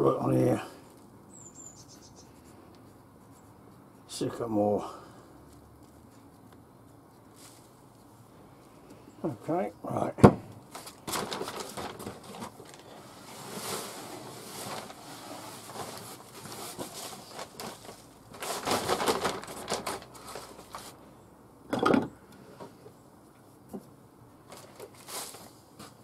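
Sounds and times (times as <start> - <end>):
plastic bag crinkling: 10.7 - 21.0.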